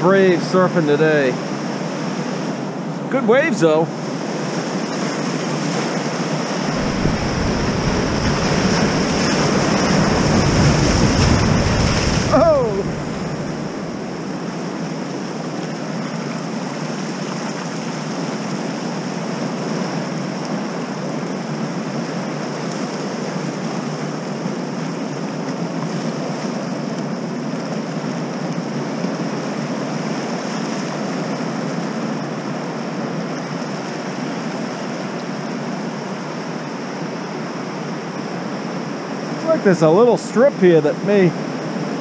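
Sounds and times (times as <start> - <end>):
ocean surf breaking: 0.0 - 21.0
wind: 0.0 - 42.0.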